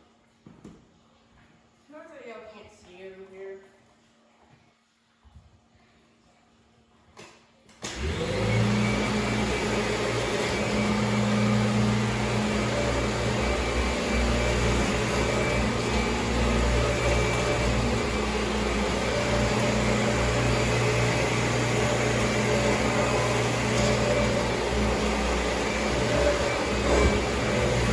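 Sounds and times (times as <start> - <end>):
vacuum cleaner motor hum: 7.8 - 27.9.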